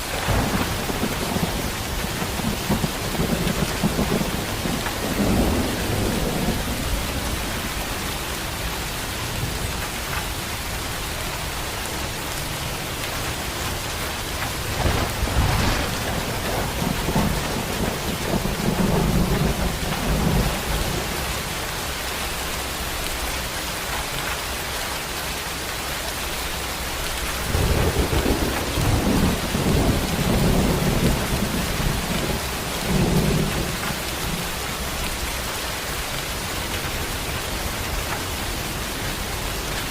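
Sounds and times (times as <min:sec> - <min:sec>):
thunder rumbling: 0:00.0 - 0:08.5, 0:14.4 - 0:21.7, 0:27.3 - 0:35.3
heavy rain falling: 0:00.0 - 0:39.9.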